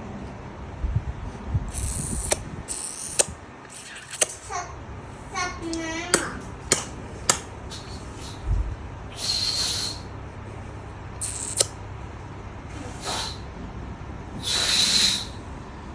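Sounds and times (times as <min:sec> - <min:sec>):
baby making breathy hissing sounds: 0:09.2 - 0:10.0, 0:13.0 - 0:13.4, 0:14.4 - 0:15.3.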